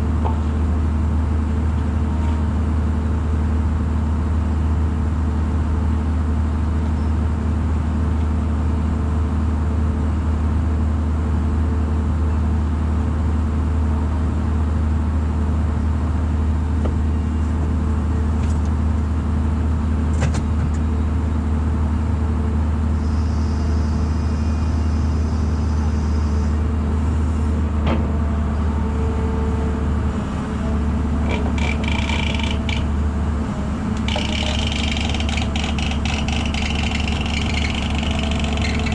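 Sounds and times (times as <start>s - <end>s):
diesel engine droning: 24.3s - 38.9s.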